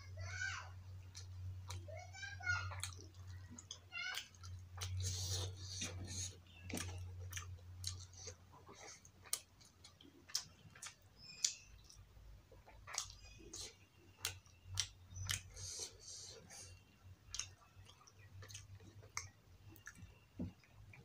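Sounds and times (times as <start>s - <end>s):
low steady hum: 0.0s - 21.0s
wet mouth clicks and smacks: 9.3s - 12.0s.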